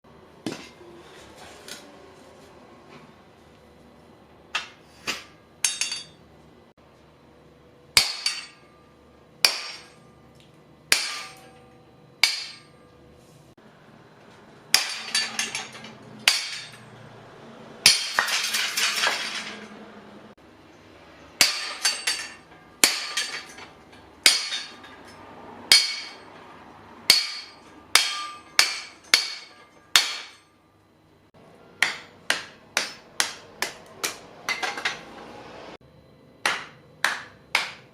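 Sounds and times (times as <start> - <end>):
sledgehammer striking metal: 8.0 - 10.1, 10.9 - 12.9, 14.7 - 17.0, 17.8 - 19.8, 21.4 - 26.4, 27.0 - 30.5, 31.8 - 35.1.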